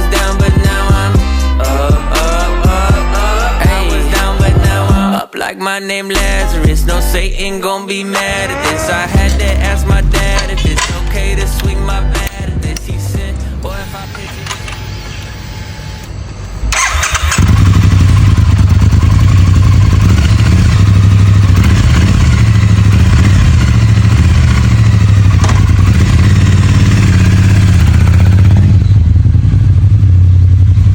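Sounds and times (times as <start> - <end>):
motorcycle engine idling: 8.3 - 13.9, 16.7 - 30.9
starter cranking: 8.3 - 15.4, 16.7 - 20.5.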